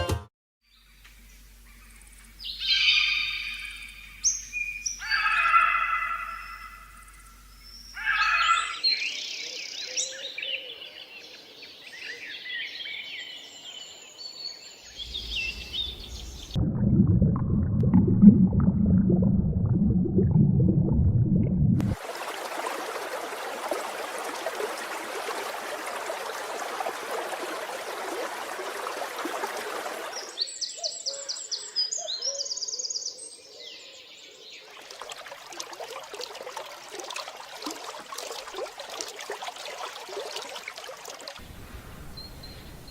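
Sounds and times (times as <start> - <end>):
bird calls and chirping: 0.8 - 11.3, 11.9 - 16.6, 30.2 - 34.4, 41.4 - 42.9
loud low rumbling: 15.0 - 22.0.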